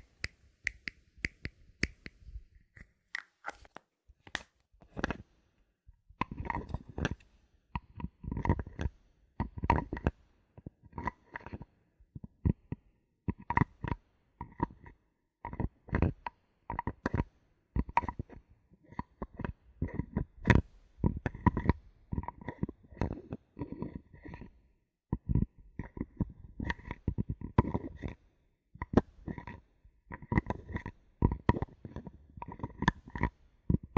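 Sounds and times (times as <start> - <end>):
bottle caps clicking and scraping: 0.7 - 5.3, 6.2 - 10.1, 16.8 - 24.5, 25.2 - 28.2, 28.8 - 33.9.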